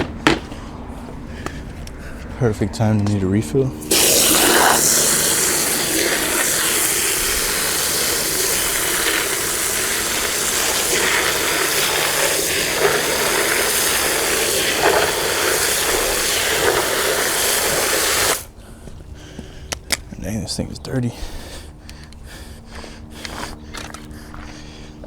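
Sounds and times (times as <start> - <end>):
pressurised water spraying: 3.7 - 18.5.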